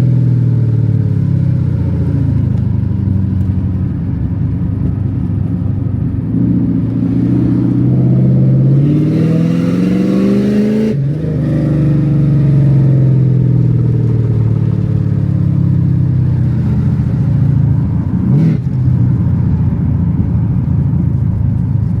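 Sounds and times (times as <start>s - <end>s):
car engine accelerating hard: 4.1s - 21.9s.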